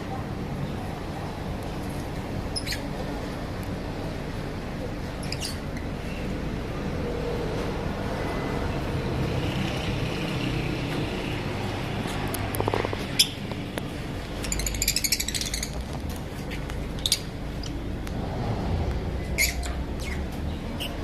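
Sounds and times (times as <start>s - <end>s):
steady low hum: 0.0s - 21.0s
birds chirping shrilly: 5.2s - 6.3s, 13.0s - 13.5s, 14.3s - 17.8s, 19.2s - 21.0s.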